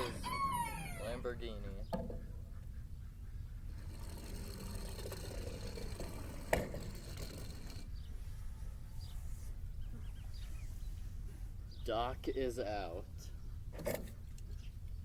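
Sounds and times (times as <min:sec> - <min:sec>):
toy cars rolling on plastic track: 0:03.8 - 0:07.9.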